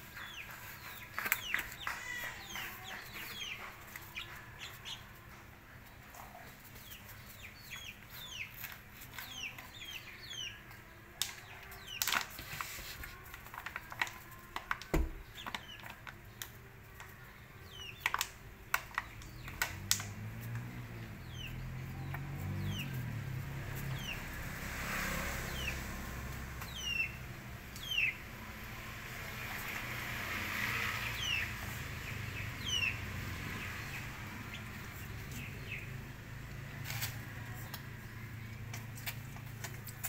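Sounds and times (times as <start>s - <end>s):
birds chirping: 0.0s - 40.0s
low engine hum: 19.2s - 40.0s.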